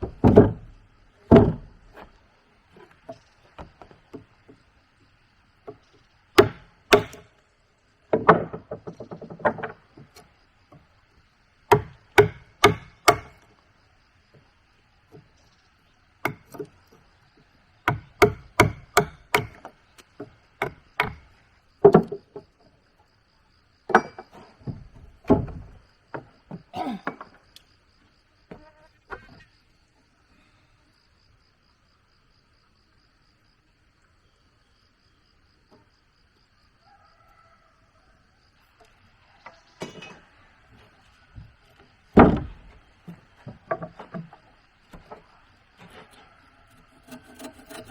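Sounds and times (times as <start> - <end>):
insects chirping: 0.0 - 47.9
hand tool striking wood: 6.4 - 7.3, 11.7 - 13.5, 16.2 - 16.8, 17.8 - 22.4, 42.2 - 47.9.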